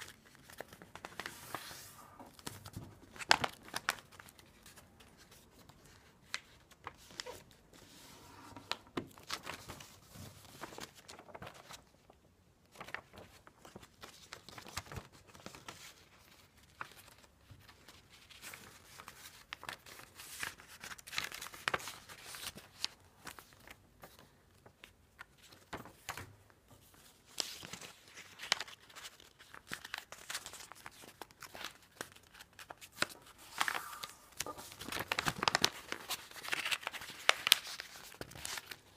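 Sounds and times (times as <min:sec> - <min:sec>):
paper crinkling and rustling: 0:00.0 - 0:38.9
paper creases crackling: 0:06.8 - 0:11.8, 0:27.4 - 0:38.9.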